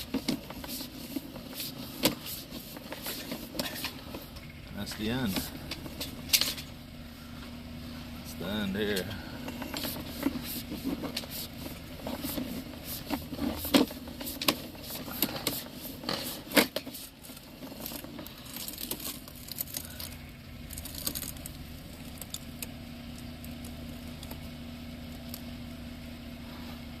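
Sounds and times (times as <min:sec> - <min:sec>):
equipment clicks and rattles: 0:00.0 - 0:06.8, 0:08.8 - 0:24.4
steady low hum: 0:00.0 - 0:27.0.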